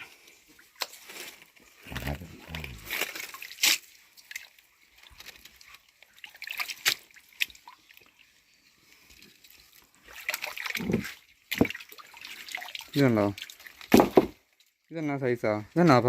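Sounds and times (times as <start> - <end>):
hands splashing in shallow water: 6.2 - 7.9, 10.0 - 13.8.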